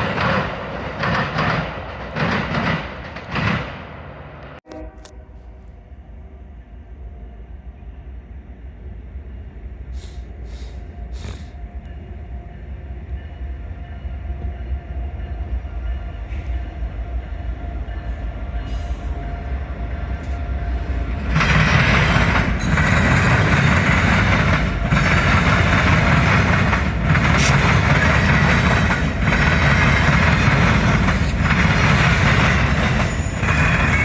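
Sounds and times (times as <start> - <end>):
train rumbling: 0.0 - 34.0
short hisses: 10.0 - 11.6.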